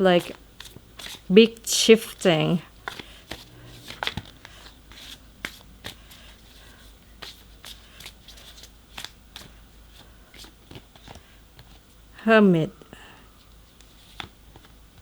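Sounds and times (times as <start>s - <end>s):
cards being shuffled: 0.2s - 1.3s, 2.8s - 11.8s, 13.7s - 15.0s.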